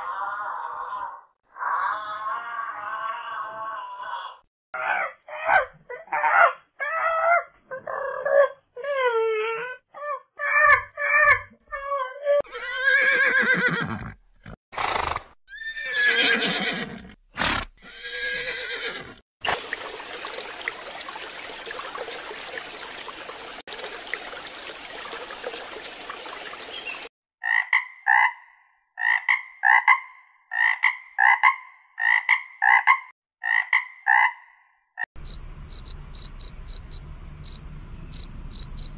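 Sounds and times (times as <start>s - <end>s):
horse neighing: 12.4s - 19.2s
frog croaking: 35.2s - 38.9s.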